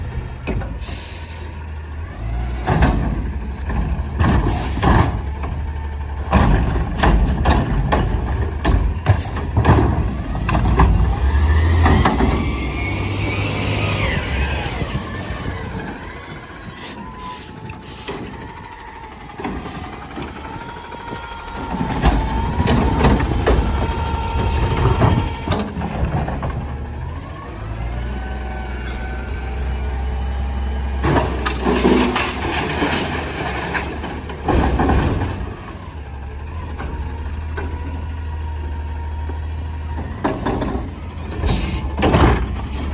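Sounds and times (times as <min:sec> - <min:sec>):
garbage truck engine rumbling: 0:00.0 - 0:42.9.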